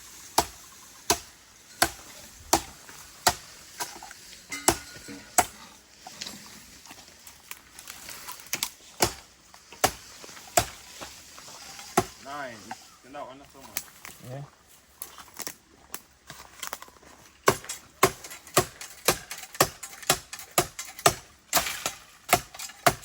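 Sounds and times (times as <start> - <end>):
blade chopping bamboo: 0.3 - 4.0, 4.6 - 5.6, 8.5 - 10.9, 11.8 - 12.2, 17.4 - 23.0.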